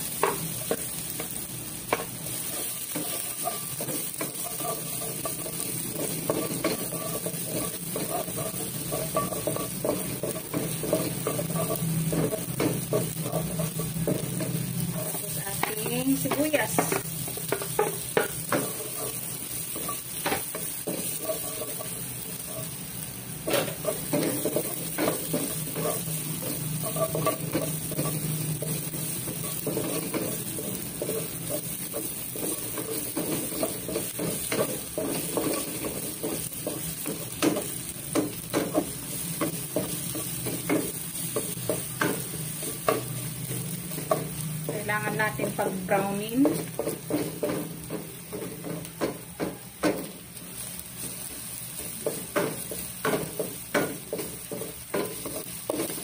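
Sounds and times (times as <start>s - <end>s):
garlic and onion sizzling in oil: 0.0s - 56.0s
wooden spatula scraping a wok: 0.0s - 56.0s.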